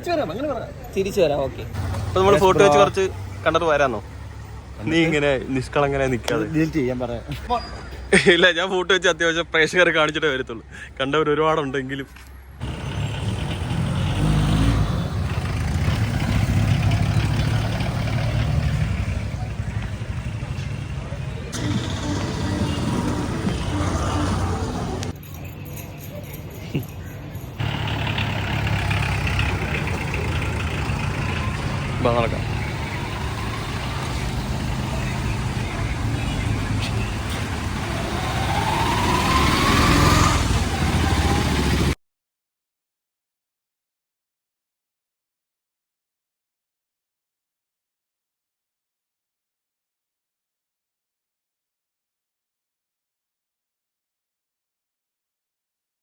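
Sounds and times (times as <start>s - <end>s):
road noise: 0.0s - 42.0s
car engine accelerating: 1.7s - 3.8s, 12.6s - 25.1s, 27.6s - 42.0s.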